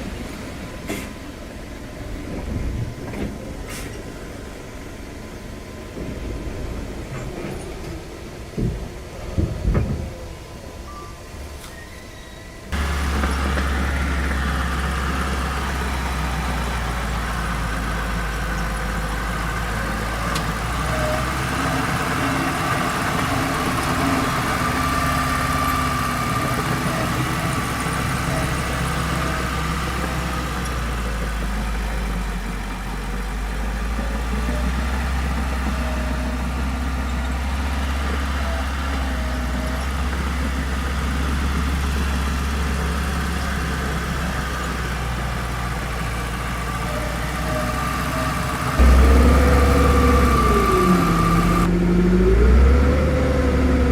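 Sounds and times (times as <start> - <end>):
heavy machine engine droning: 12.5 - 53.9.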